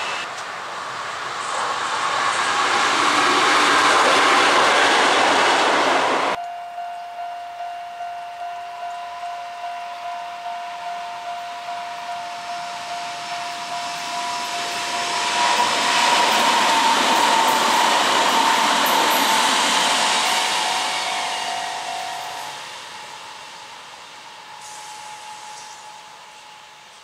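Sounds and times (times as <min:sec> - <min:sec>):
electric train passing: 0:00.0 - 0:27.0
level crossing warning bell: 0:06.3 - 0:27.0.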